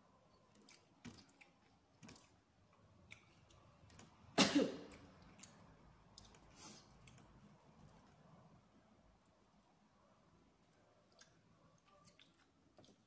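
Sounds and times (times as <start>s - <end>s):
person chewing: 0.5s - 4.2s, 4.8s - 7.5s, 10.6s - 13.0s
person coughing: 4.4s - 4.9s
mouth clicks and smacks: 4.8s - 7.4s, 10.6s - 13.0s.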